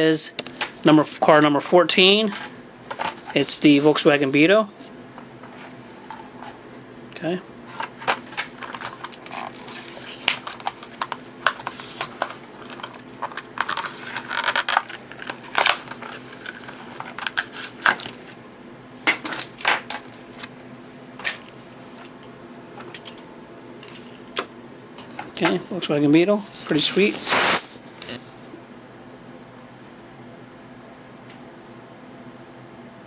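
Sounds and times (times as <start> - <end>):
plastic blister pack crackling: 8.2 - 18.3
card tearing: 13.6 - 18.3, 26.7 - 27.7.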